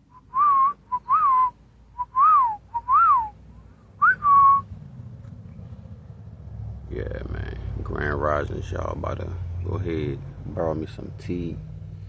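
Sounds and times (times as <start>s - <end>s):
person whistling bird call: 0.1s - 3.4s, 4.0s - 4.7s.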